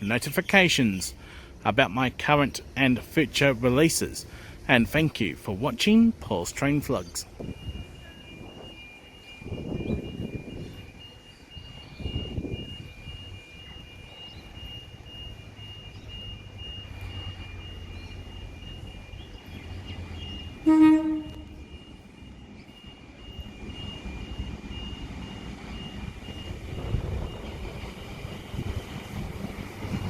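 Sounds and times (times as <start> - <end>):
low rumble of rail traffic: 0.0 - 30.0
train horn blast: 20.6 - 21.7.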